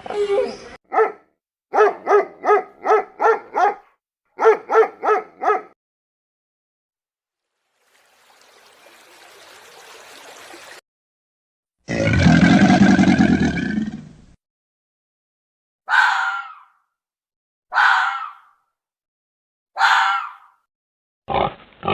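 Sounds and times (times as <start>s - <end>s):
dog barking: 0.9s - 5.8s, 15.9s - 16.7s, 17.7s - 18.5s, 19.8s - 20.6s.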